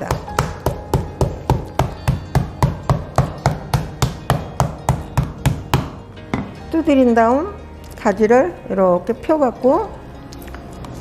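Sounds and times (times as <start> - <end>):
wooden bat pounding eggplant: 0.0 - 6.6.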